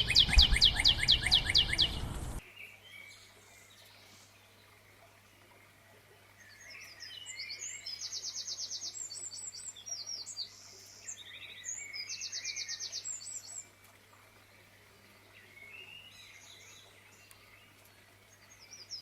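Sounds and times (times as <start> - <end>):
songbird singing with trill: 0.0 - 4.1, 6.4 - 13.7, 15.2 - 19.0.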